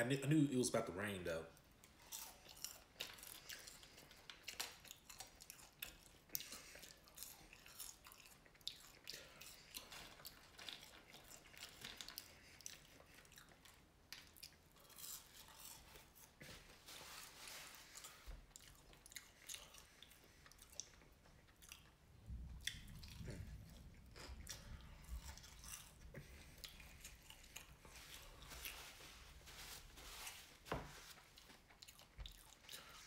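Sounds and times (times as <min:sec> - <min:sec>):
chewing and crunching fried food: 0:01.4 - 0:33.0.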